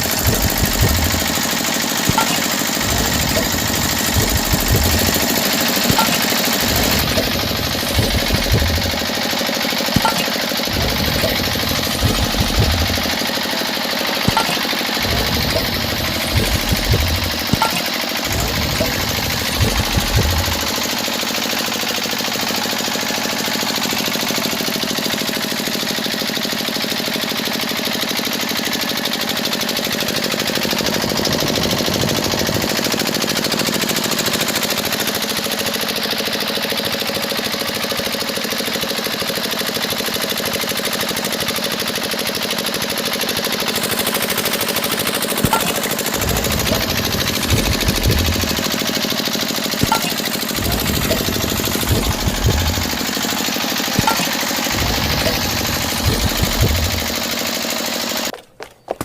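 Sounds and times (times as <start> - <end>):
small motor rattling: 0.0 - 21.4, 43.1 - 58.3.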